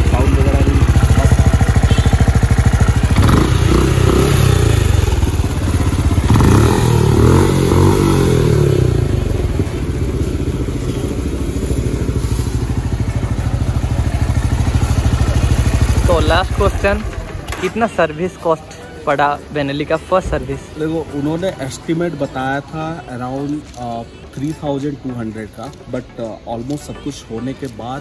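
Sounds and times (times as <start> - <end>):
motorcycle engine revving and idling: 0.0 - 22.3.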